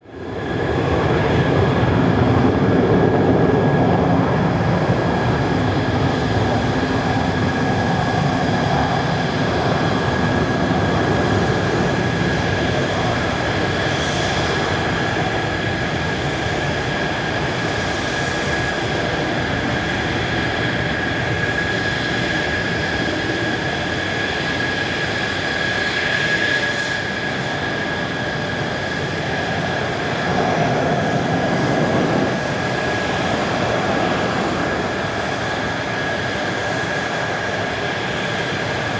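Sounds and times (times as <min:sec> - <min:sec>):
jet engine running with high whine: 0:00.0 - 0:38.9.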